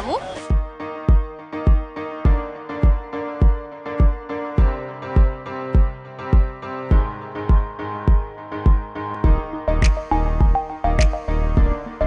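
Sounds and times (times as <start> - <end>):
kick drum beat: 0.5 - 11.9
held synth chords: 9.2 - 12.0.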